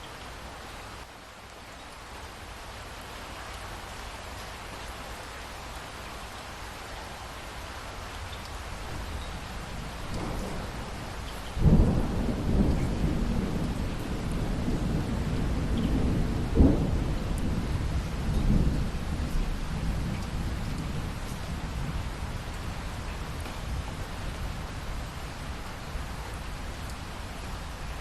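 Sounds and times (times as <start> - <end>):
steady rain falling: 0.0 - 28.0
thunder rumbling and clapping: 10.0 - 23.9.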